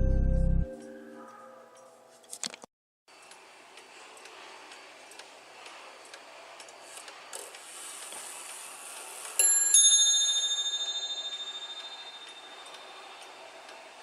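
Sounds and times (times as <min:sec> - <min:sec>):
clock striking train whirring: 0:03.2 - 0:14.0
clock bell strikes: 0:09.4 - 0:13.1.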